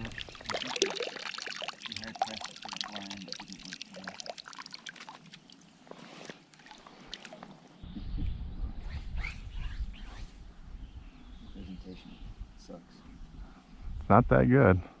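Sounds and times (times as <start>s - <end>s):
water splashing and trickling: 0.0s - 7.8s.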